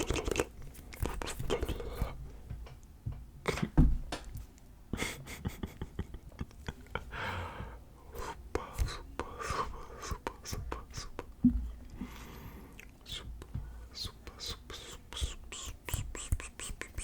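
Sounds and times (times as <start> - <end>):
wet mouth clicks and smacks: 0.0 - 2.1, 14.0 - 17.0
breathy whispered noises: 0.0 - 2.4, 7.5 - 17.0.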